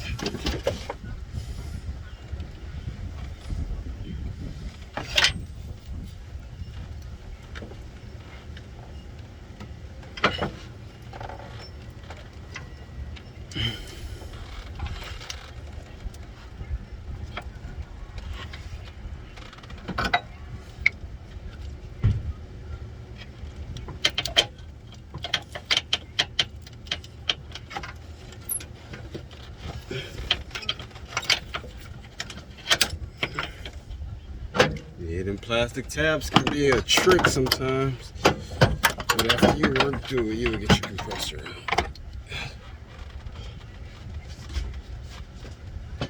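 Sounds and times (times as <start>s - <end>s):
tools clicking on car parts: 23.2s - 43.4s
steady low rumble: 29.6s - 46.0s.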